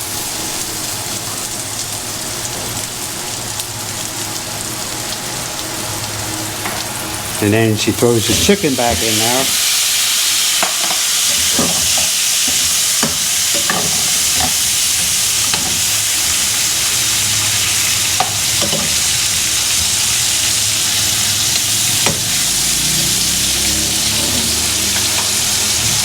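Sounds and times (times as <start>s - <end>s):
chicken sizzling in a pan: 0.0s - 26.0s
utensil clicks and scrapes in pan: 10.6s - 16.4s.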